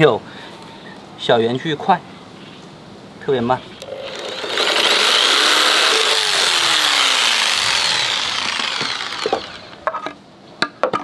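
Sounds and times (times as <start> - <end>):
jigsaw cutting through board: 3.8 - 9.8.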